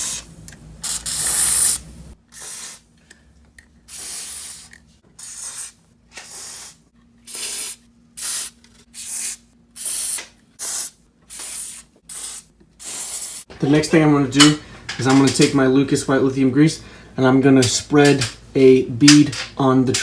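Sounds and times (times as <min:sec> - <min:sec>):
aerosol can spraying: 0:00.0 - 0:01.8, 0:02.4 - 0:02.8, 0:03.9 - 0:13.5.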